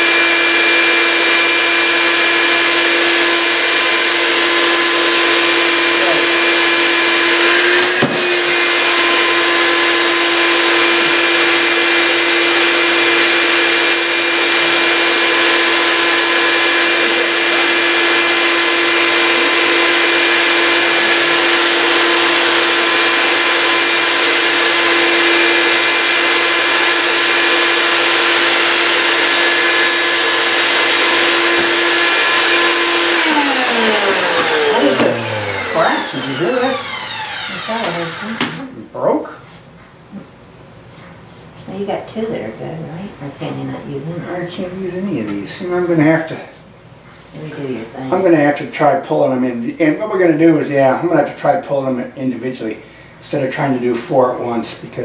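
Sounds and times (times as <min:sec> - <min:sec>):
vacuum motor humming: 0:00.0 - 0:39.2.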